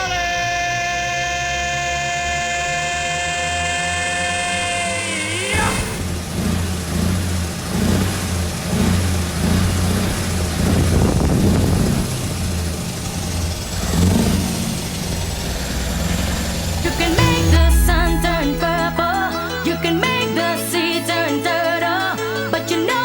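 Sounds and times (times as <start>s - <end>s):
diesel truck engine revving: 0.0s - 20.2s.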